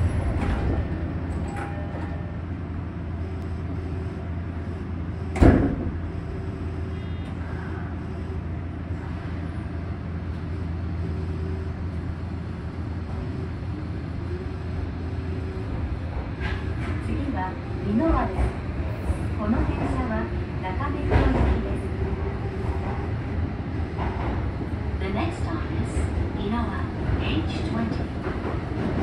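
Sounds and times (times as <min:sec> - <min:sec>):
train car low hum: 0:00.0 - 0:29.0
loud short thump: 0:05.4 - 0:06.0.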